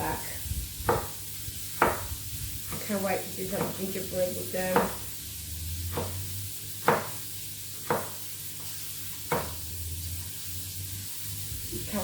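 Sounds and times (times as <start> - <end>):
food sizzling in a frying pan: 0.0 - 12.0
utensil knocking against pan: 0.8 - 1.2, 1.8 - 2.1, 3.5 - 3.8, 4.7 - 5.0, 6.8 - 7.2, 7.8 - 8.2, 9.3 - 9.6.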